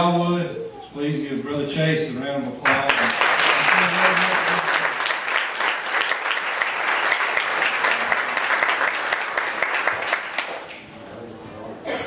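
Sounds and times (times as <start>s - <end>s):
congregation applauding: 2.6s - 10.9s.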